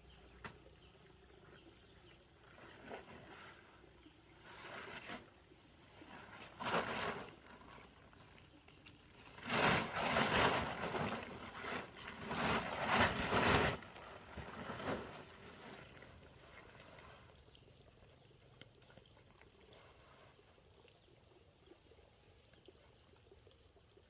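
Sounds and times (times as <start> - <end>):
rustling scraping noise: 4.4 - 5.4, 6.0 - 8.0, 9.2 - 17.3.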